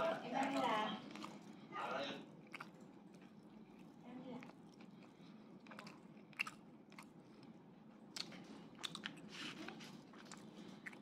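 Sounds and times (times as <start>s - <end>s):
chewing and biting food: 0.0s - 11.0s.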